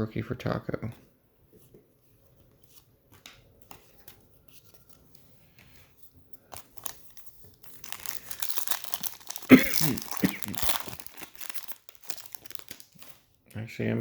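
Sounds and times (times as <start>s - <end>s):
trading cards clicking and rustling: 2.6s - 13.2s
wrapper crinkling and tearing: 6.4s - 13.6s.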